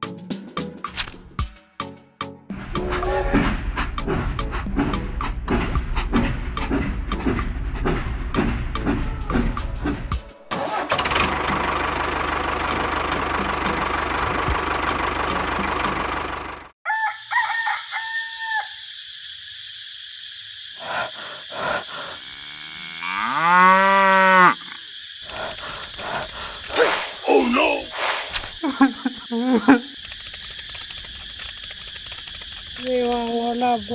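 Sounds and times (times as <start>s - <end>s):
cow mooing: 22.2s - 24.8s.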